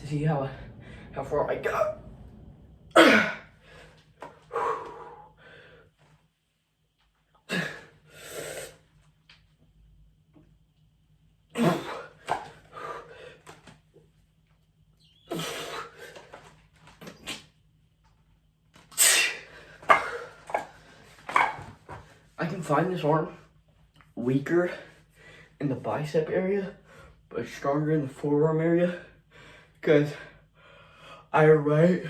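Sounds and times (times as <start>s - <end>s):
man exhaling hard: 0.4s - 1.2s, 2.0s - 5.9s.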